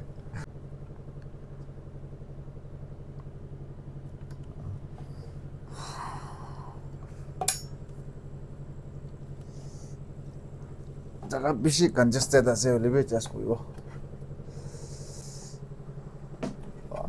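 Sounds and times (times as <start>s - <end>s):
steady low hum: 0.0s - 17.0s
brief hissing: 14.7s - 15.6s.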